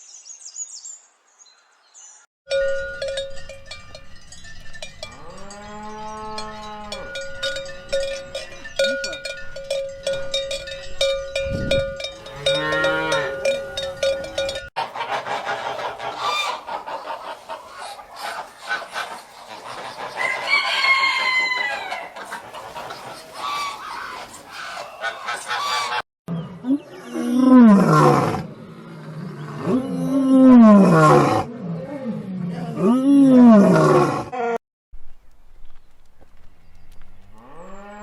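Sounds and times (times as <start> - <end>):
chickens clucking: 14.8 - 26.0
rooster crowing: 20.1 - 22.2.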